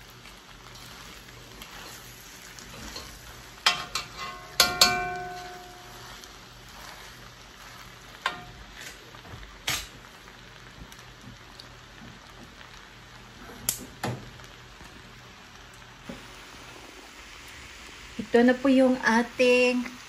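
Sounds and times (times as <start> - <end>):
noodles sizzling in a wok: 0.0 - 20.0
utensils knocking against wok: 3.6 - 5.9.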